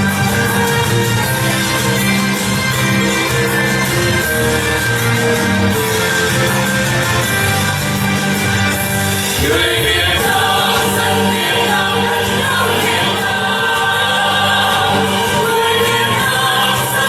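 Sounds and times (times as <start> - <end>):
instrumental accompaniment: 0.0 - 17.0
choir singing: 9.3 - 17.0.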